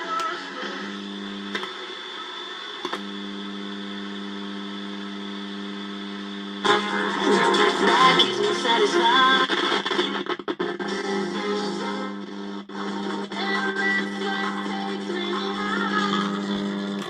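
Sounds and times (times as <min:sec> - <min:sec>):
radio electrical hum: 0:00.0 - 0:17.0
radio music: 0:00.0 - 0:17.0
radio switch click: 0:01.5 - 0:01.9, 0:02.8 - 0:03.1.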